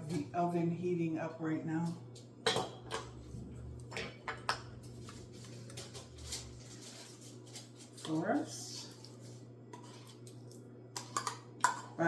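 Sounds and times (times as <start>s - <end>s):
steady low hum: 0.0s - 12.0s
dishes and utensils clinking: 2.5s - 3.3s, 11.0s - 12.0s.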